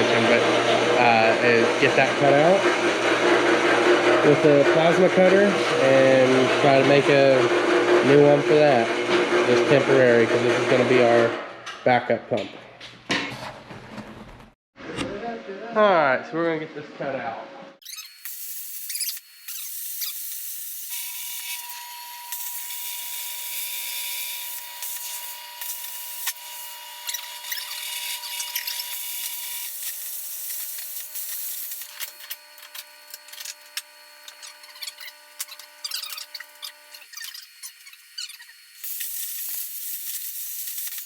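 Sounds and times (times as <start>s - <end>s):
plasma cutter hissing: 18.2s - 26.6s, 27.5s - 32.0s, 37.7s - 41.0s.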